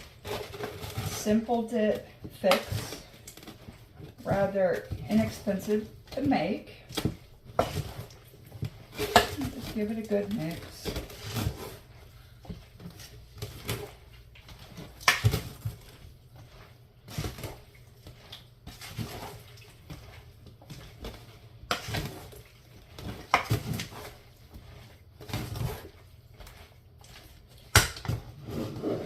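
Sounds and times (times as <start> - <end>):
utensil scraping a bowl: 0.0 - 15.0, 28.4 - 29.0.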